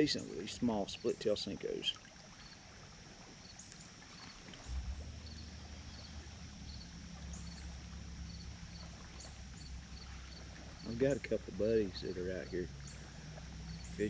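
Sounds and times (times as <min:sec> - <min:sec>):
boat motor humming: 0:00.0 - 0:14.0
faint insect chirps: 0:00.0 - 0:14.0.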